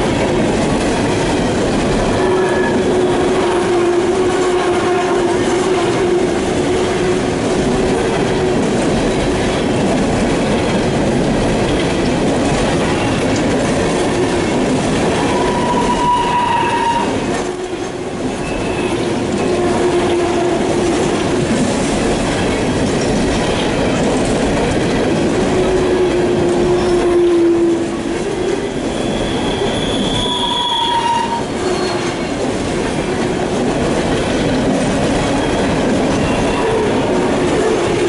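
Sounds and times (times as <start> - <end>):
train wheels rumbling on rail: 0.0 - 38.0
wheel flanges squealing: 28.6 - 32.3.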